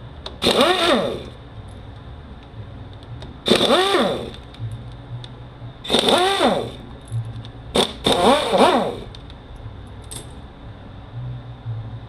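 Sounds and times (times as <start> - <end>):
power tool whirring: 0.4 - 1.4, 3.4 - 4.4, 5.9 - 6.8, 7.8 - 9.2.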